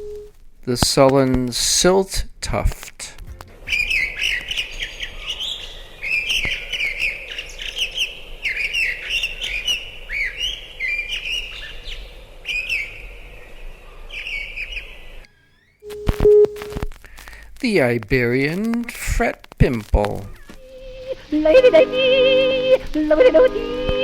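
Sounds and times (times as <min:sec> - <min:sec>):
songbird warbling: 0:03.7 - 0:15.3, 0:20.3 - 0:24.0.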